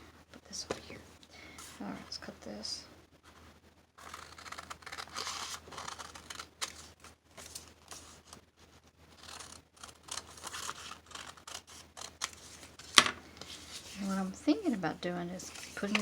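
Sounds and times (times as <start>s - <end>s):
scissors cutting paper: 4.0s - 6.8s, 9.2s - 12.7s, 15.6s - 16.0s.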